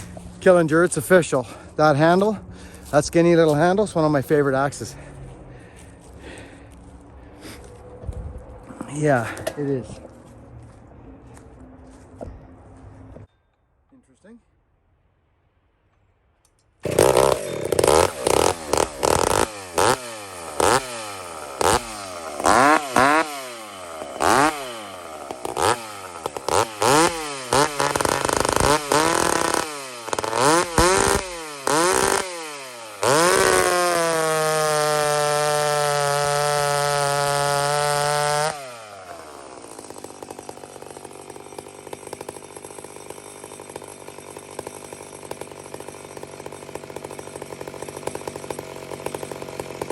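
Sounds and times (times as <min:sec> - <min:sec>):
chainsaw revving and idling: 0:00.0 - 0:07.9, 0:08.6 - 0:10.7, 0:16.8 - 0:49.9.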